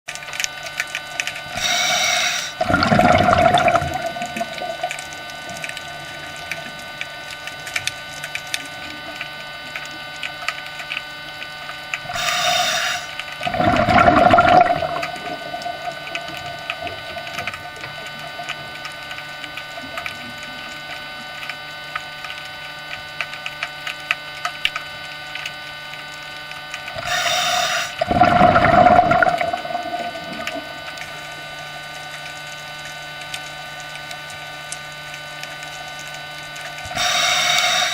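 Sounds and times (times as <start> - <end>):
aquarium equipment humming: 0.1 - 37.9
rushing water-like noise: 12.0 - 20.1, 26.9 - 31.9, 36.6 - 37.9.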